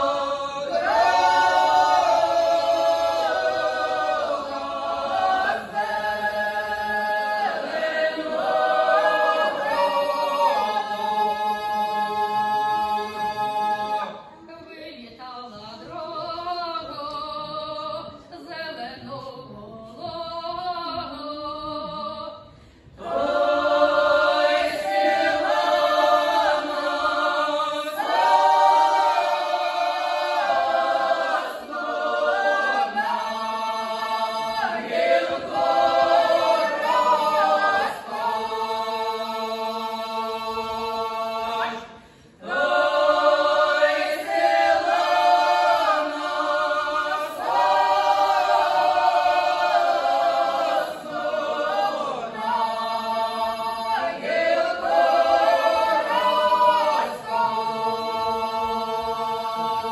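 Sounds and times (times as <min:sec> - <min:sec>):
group singing a cappella: 0:00.0 - 0:14.6, 0:15.4 - 0:59.9.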